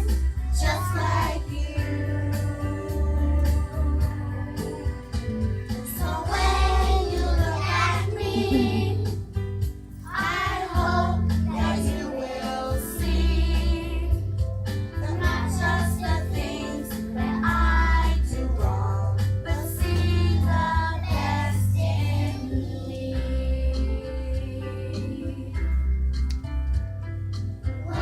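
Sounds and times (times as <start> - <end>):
voices singing: 0.0 - 4.9, 5.8 - 9.2, 10.1 - 14.2, 15.1 - 25.5
backing track with heavy bass: 0.0 - 12.0, 23.2 - 28.0.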